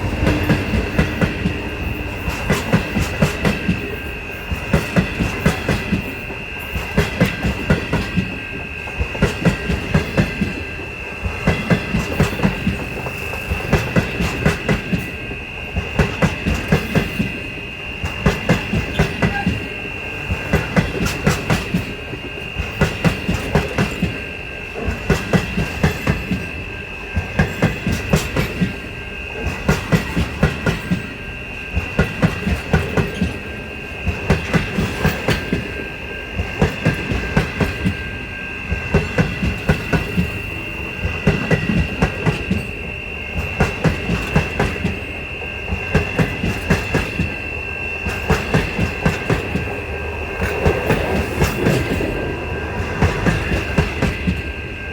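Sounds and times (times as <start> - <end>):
steady high tone: 0.0 - 4.6
train wheels clattering over joints: 0.0 - 54.9.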